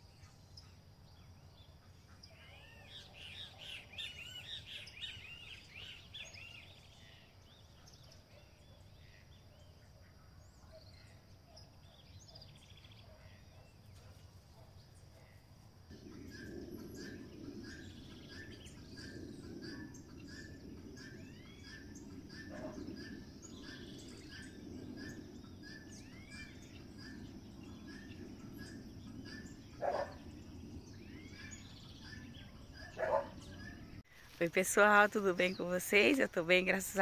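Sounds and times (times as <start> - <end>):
bird chirps: 0.0 - 37.0.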